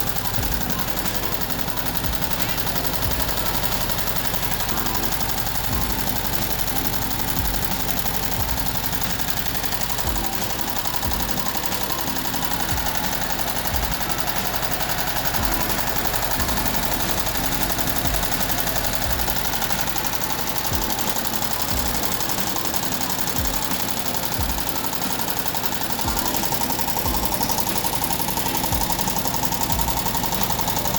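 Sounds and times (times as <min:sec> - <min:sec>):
engine clattering: 0:00.0 - 0:30.9.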